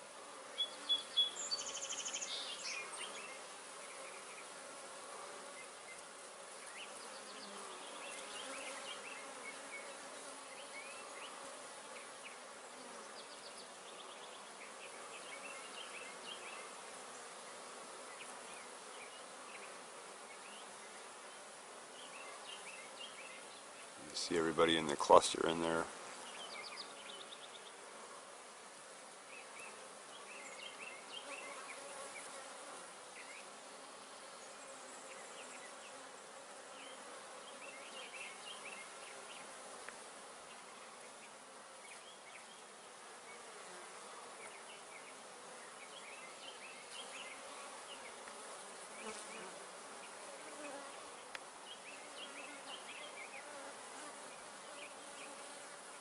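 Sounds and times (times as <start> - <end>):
bees humming: 0.0 - 56.0.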